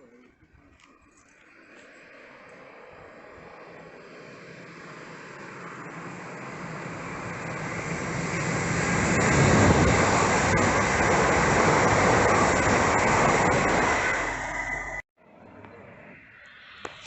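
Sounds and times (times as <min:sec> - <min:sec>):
train passing at speed: 0:01.5 - 0:15.0.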